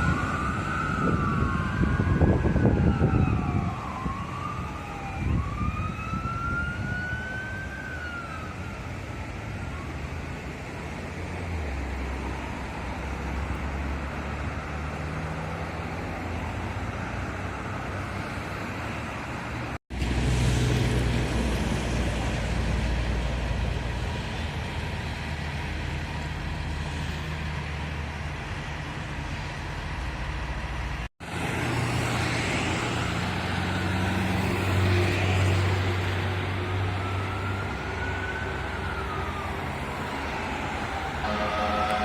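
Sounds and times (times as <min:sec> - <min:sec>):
siren rising and falling: 0:00.0 - 0:10.0, 0:36.4 - 0:42.0
truck diesel engine hum: 0:08.8 - 0:42.0.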